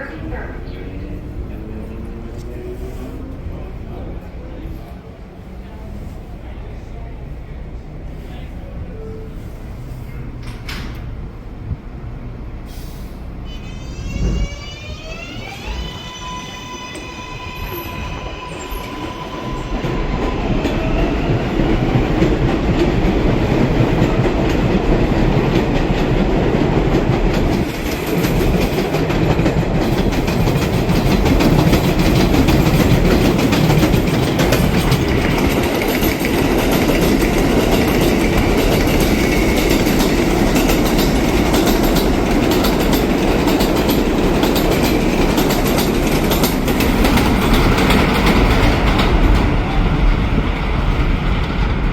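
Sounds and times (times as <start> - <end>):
train wheels clattering over rails: 18.7 - 51.9.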